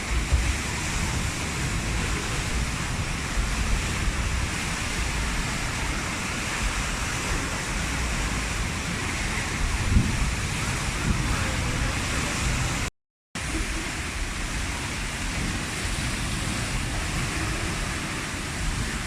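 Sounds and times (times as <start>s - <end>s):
wind buffeting microphone: 0.0s - 12.9s
waves breaking: 0.0s - 19.0s.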